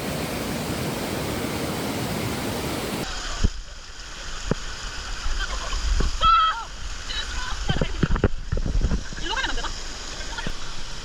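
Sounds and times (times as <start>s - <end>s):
waterfall rushing: 0.0s - 5.3s.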